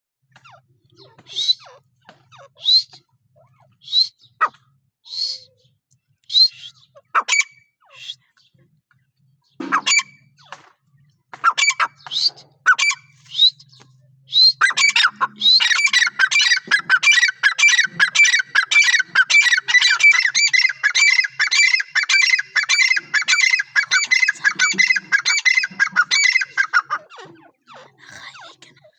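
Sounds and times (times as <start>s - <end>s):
bird squawking calls: 1.0s - 1.8s, 2.4s - 5.5s, 6.3s - 8.2s, 9.6s - 10.2s, 11.4s - 27.3s.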